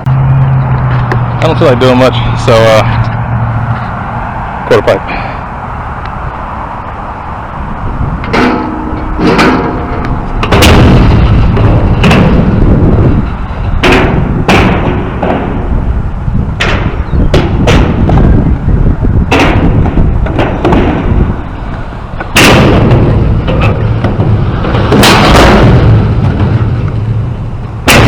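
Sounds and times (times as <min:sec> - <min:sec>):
skateboard rolling on concrete: 0:00.0 - 0:27.9.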